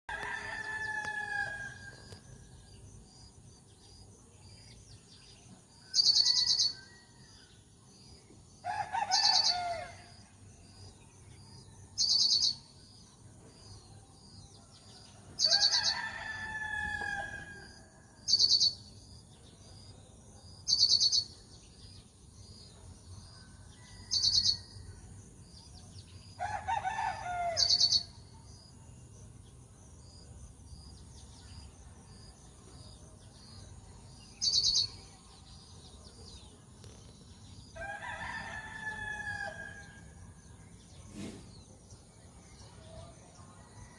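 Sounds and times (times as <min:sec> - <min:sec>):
bird chirping: 0:12.0 - 0:16.0, 0:18.2 - 0:24.8, 0:29.0 - 0:37.8.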